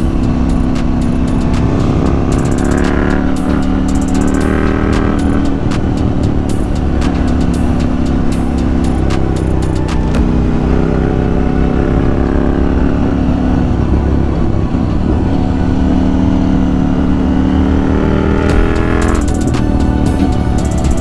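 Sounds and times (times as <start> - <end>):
sharp high ticks: 0.0 - 10.2
motorcycle engine accelerating: 0.0 - 21.0.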